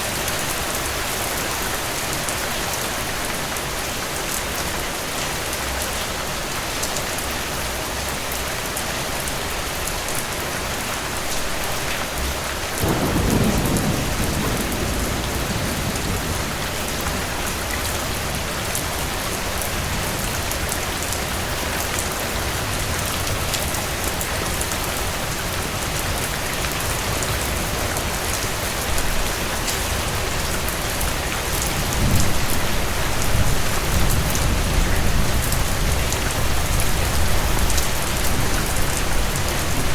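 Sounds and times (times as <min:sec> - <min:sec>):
steady rain falling: 0:00.0 - 0:39.9
thunder rumbling: 0:12.8 - 0:20.0.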